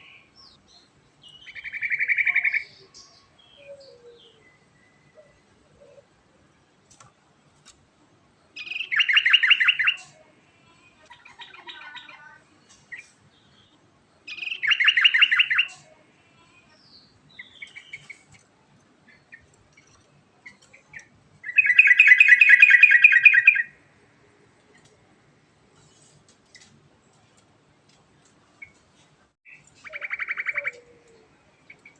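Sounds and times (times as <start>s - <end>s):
soft bird chattering: 8.6s - 10.2s, 29.5s - 31.9s.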